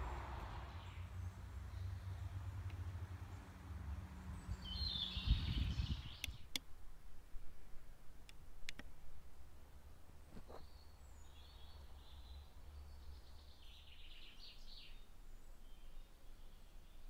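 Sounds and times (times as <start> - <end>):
steady low rumble: 0.0 - 6.2
small birds chirping: 0.0 - 6.6, 10.4 - 17.0
sharp clicks: 8.2 - 8.9.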